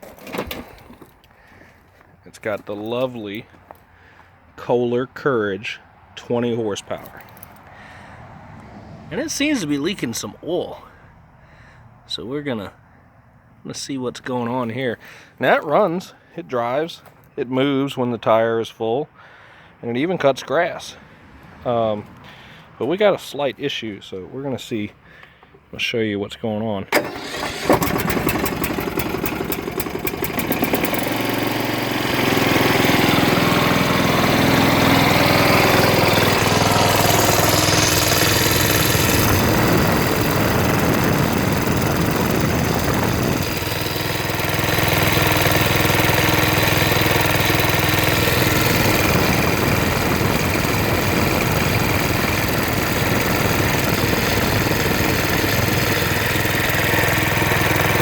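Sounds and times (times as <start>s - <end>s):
starter cranking: 0.0s - 1.3s, 27.0s - 58.0s
riding mower engine running: 0.0s - 4.3s, 26.9s - 58.0s.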